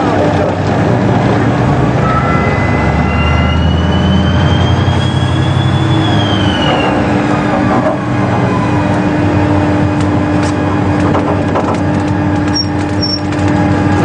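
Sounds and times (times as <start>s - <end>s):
heavy machinery engine humming: 0.0s - 14.0s
high whine: 1.2s - 11.0s.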